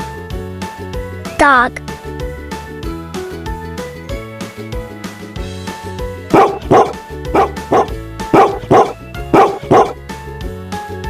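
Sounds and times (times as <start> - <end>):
light children's music: 0.0 - 11.0
dog barking: 6.3 - 10.0.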